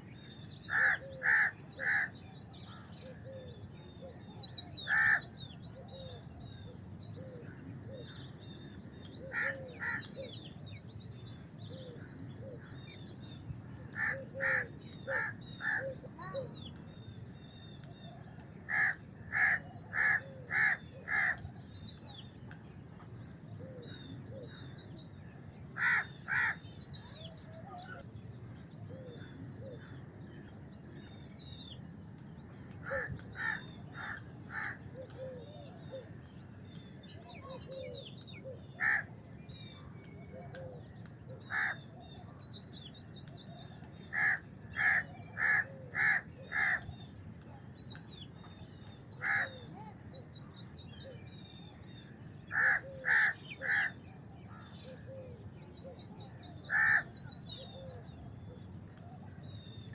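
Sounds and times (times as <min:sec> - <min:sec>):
small birds chirping: 0:00.0 - 0:59.9
crows cawing: 0:00.7 - 0:02.2, 0:04.8 - 0:05.3, 0:09.2 - 0:10.2, 0:14.0 - 0:16.3, 0:18.7 - 0:21.4, 0:25.8 - 0:26.6, 0:32.8 - 0:34.8, 0:38.8 - 0:39.1, 0:41.5 - 0:41.9, 0:44.1 - 0:46.9, 0:49.2 - 0:49.6, 0:52.5 - 0:54.0, 0:56.7 - 0:57.1.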